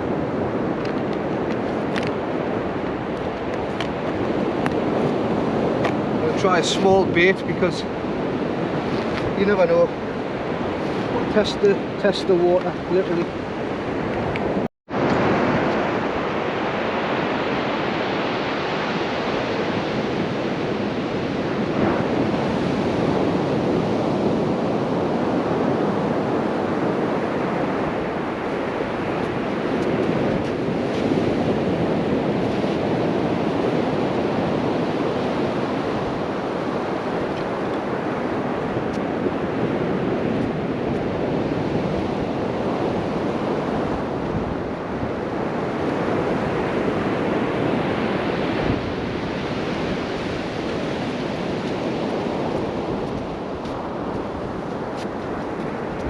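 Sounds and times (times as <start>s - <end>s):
sea surf washing onto beach: 0.0s - 56.0s
wind buffeting microphone: 0.0s - 56.0s.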